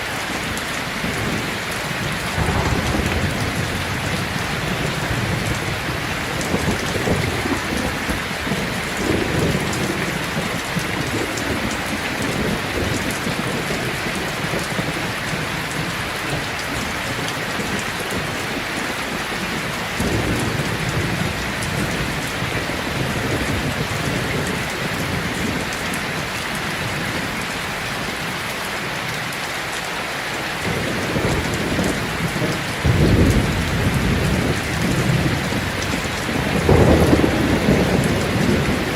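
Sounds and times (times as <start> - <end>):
heavy rain: 0.0 - 38.9
thunder rolling: 0.9 - 16.0, 31.1 - 38.9
loud thunderclap: 0.9 - 16.8, 31.0 - 38.9.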